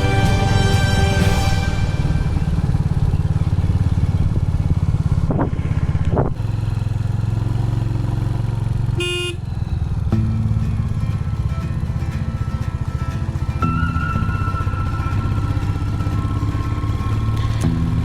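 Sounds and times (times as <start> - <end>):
motorcycle engine thumping: 1.4 - 13.6
short vehicle horn blast: 8.9 - 9.5.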